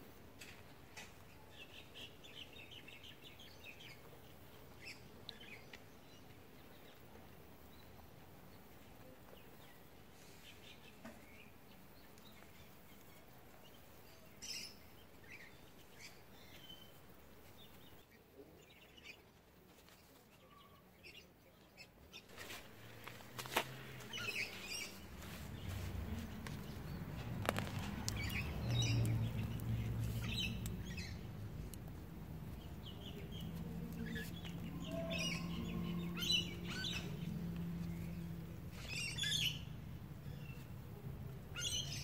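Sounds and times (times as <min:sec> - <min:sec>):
faint bird chirps: 0:19.9 - 0:22.3
hands working loose soil: 0:22.3 - 0:30.8.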